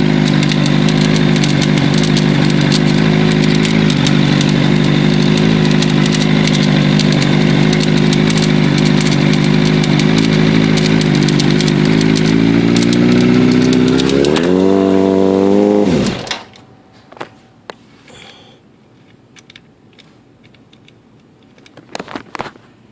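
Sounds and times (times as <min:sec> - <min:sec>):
motorcycle engine idling: 0:00.0 - 0:17.1
clicking rattle: 0:00.1 - 0:14.7, 0:19.4 - 0:22.1.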